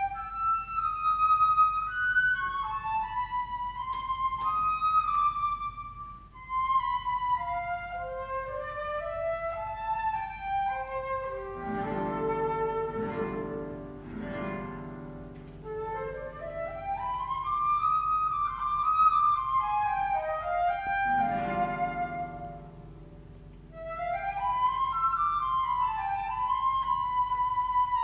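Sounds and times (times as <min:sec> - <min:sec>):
flute melody: 0:00.0 - 0:28.0
guitar chords: 0:11.6 - 0:15.7, 0:21.1 - 0:23.8.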